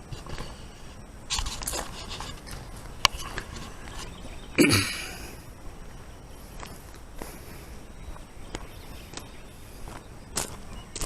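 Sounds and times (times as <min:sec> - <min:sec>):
footsteps: 0:00.0 - 0:04.6, 0:05.2 - 0:11.0.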